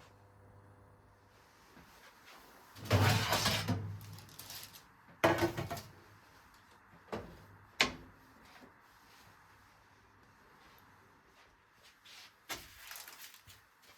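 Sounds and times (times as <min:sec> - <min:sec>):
rough scrape or rustle: 0:02.3 - 0:04.9.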